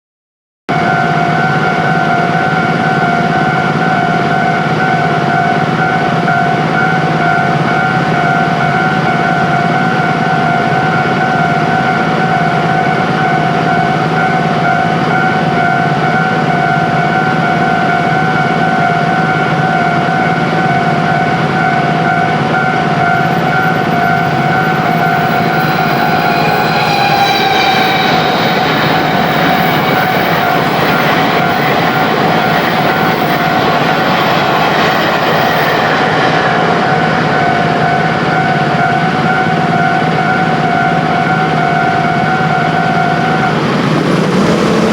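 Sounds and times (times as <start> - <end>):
approaching train: 0.7 - 44.9
level crossing warning bell: 0.7 - 44.9.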